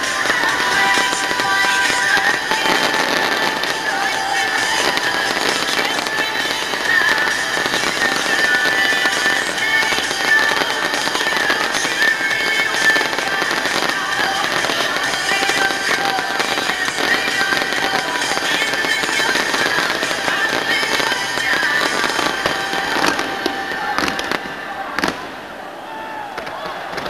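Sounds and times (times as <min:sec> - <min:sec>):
fireworks crackling and popping: 0:00.0 - 0:25.7, 0:26.3 - 0:27.0.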